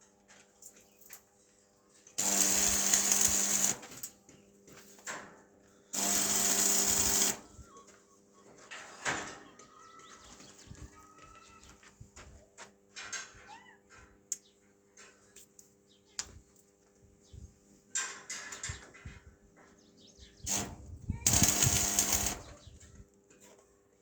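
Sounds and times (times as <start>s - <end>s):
small power tool bursts: 2.2s - 4.1s, 5.9s - 7.6s, 20.5s - 22.6s.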